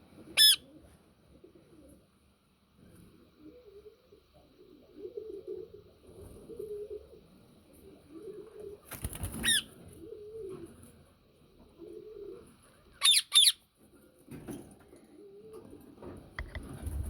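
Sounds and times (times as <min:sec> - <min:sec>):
parakeet shrill screeches: 0:00.4 - 0:00.6, 0:13.0 - 0:13.6.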